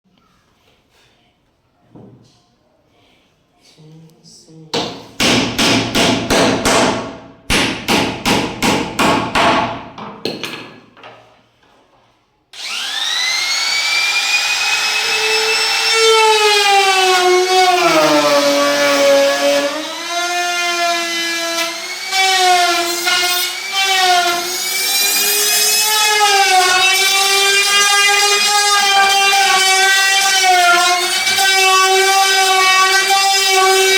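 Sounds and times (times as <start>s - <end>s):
hammer-like knocks: 4.8s - 10.8s
power tool motor whining: 12.6s - 33.9s.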